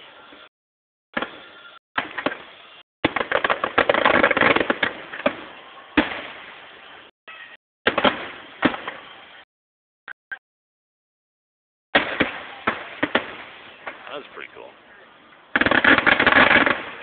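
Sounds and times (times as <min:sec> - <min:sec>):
fireworks crackling pops: 0:01.2 - 0:07.1, 0:07.8 - 0:09.4, 0:11.9 - 0:14.7, 0:15.5 - 0:17.0
fireworks sharp bangs: 0:01.2 - 0:07.1, 0:07.8 - 0:09.5, 0:11.9 - 0:14.6, 0:15.5 - 0:17.0.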